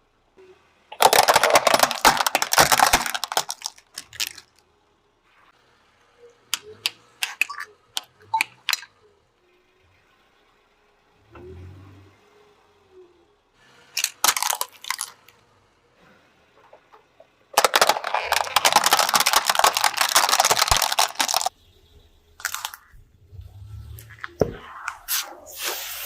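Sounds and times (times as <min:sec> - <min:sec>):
sharp cracks: 0:00.9 - 0:04.6, 0:14.0 - 0:15.2, 0:17.6 - 0:21.5
brittle things crunching: 0:01.0 - 0:04.6, 0:14.0 - 0:15.2, 0:17.6 - 0:21.5, 0:22.4 - 0:22.9.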